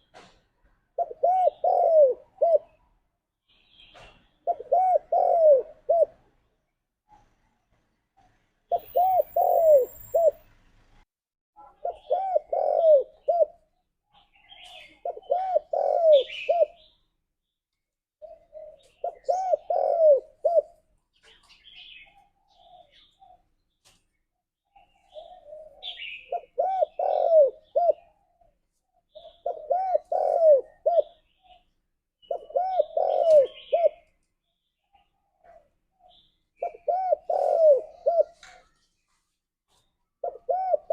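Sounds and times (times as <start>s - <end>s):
dove cooing: 0.9s - 2.9s, 4.4s - 6.3s, 8.7s - 10.5s, 11.6s - 13.7s, 14.4s - 16.9s, 18.2s - 20.8s, 21.6s - 23.5s, 24.8s - 31.6s, 32.2s - 34.2s, 34.9s - 38.8s, 40.2s - 40.9s.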